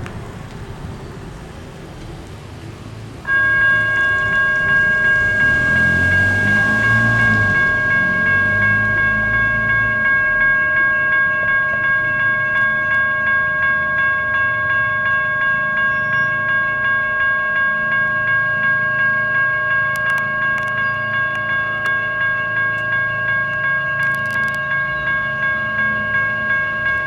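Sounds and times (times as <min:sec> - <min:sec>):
railroad crossing bell ringing: 0:03.2 - 0:27.0.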